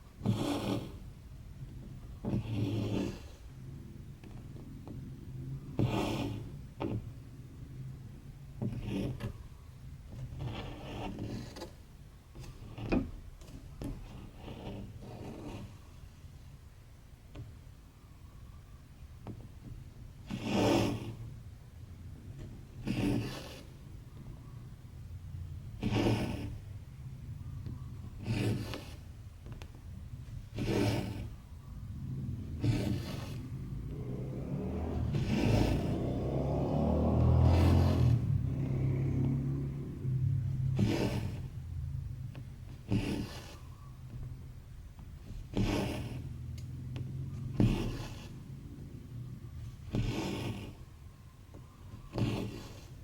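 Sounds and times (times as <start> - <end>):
thread rasping through fabric: 0.2 - 3.5, 4.2 - 7.1, 8.6 - 9.4, 10.1 - 15.8, 19.2 - 21.4, 22.2 - 24.0, 25.6 - 53.0
thread pulled through fabric: 30.3 - 41.6
steady low hum: 31.2 - 42.9.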